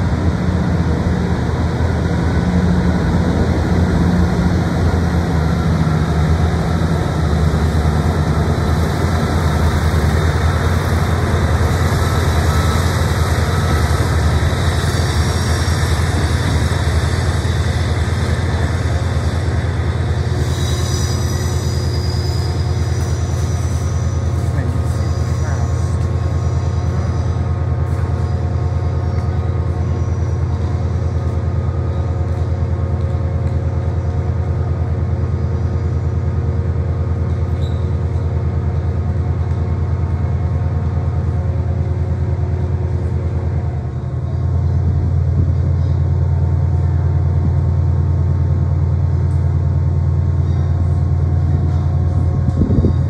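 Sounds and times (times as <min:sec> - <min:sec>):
train engines rumbling: 0:00.0 - 0:53.0.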